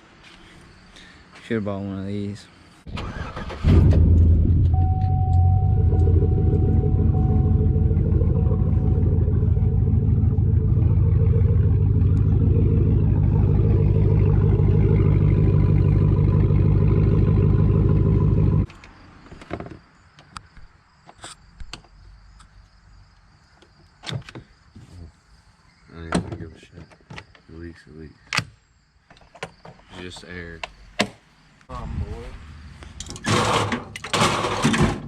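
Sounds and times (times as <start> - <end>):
motor humming: 4.8 - 18.7.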